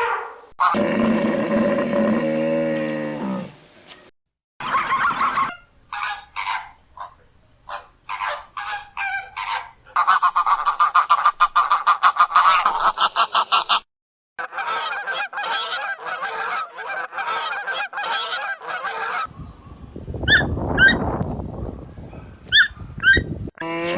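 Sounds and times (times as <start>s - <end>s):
geese honking: 4.6s - 13.8s, 14.4s - 23.3s.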